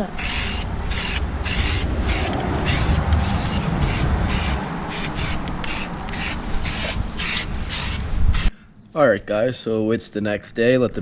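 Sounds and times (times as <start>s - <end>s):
spray can hissing bursts: 0.2s - 8.5s.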